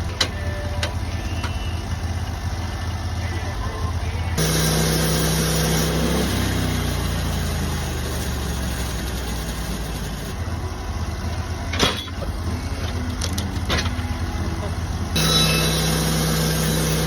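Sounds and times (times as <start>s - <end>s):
engine idling: 0.0s - 17.0s
sharp metal clank: 11.7s - 12.3s, 15.2s - 17.0s.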